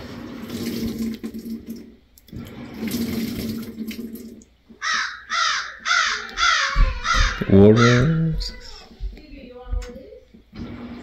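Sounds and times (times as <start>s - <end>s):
crow cawing: 4.8s - 8.9s.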